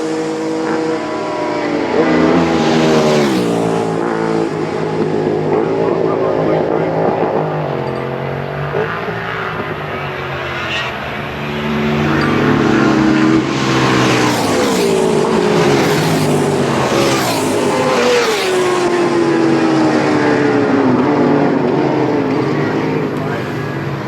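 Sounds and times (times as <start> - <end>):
racing motorcycles passing: 0.0 - 24.0.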